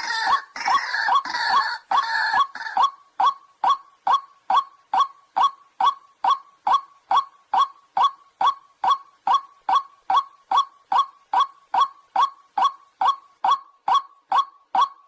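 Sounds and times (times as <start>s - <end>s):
waterhen calling sharp notes: 0.0s - 15.0s.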